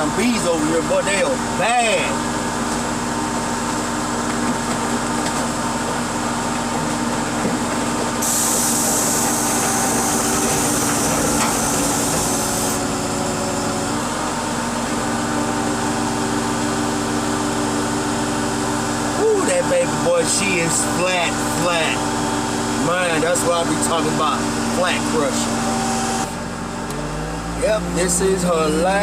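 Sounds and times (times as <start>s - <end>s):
car crusher running under load: 0.0s - 29.0s
loud high hiss: 8.2s - 12.8s.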